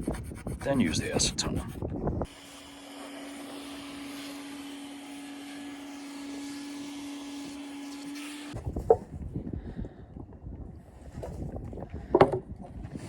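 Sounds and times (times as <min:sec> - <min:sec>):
small motor whirring: 0:02.2 - 0:08.6.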